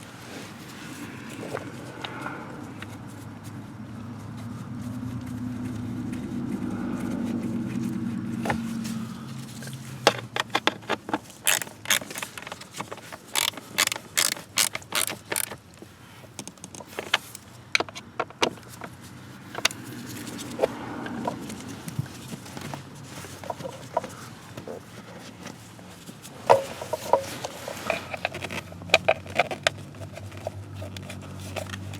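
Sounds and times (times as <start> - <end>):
tools clicking and knocking: 9.6 - 15.6, 16.3 - 21.7, 26.4 - 31.9.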